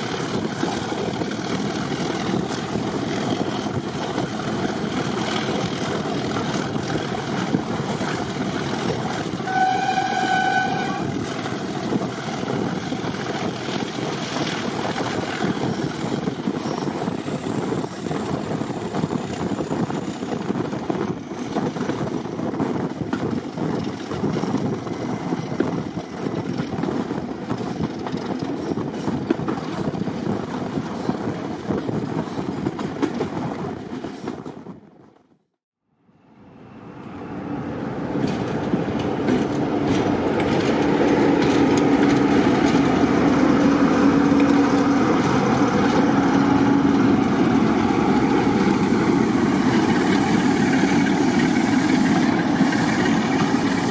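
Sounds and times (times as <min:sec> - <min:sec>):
diesel locomotive rumble: 0:00.0 - 0:34.8, 0:36.4 - 0:53.9
rail noise: 0:00.0 - 0:35.2, 0:35.9 - 0:53.9
train horn blast: 0:09.4 - 0:11.2.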